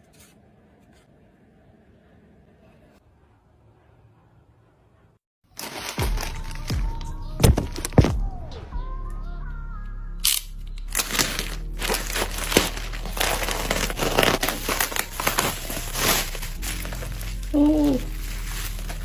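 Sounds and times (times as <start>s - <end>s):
packaging crinkling and tearing: 5.5s - 6.7s, 10.3s - 19.0s.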